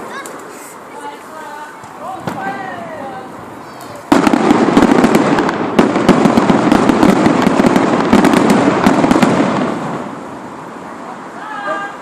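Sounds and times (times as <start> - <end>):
fireworks bangs and crackles: 0.0 - 11.4.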